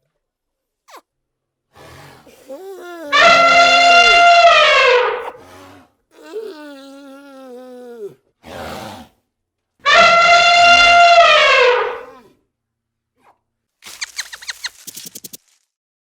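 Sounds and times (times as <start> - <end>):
animal calling: 2.8 - 5.6, 9.9 - 12.3.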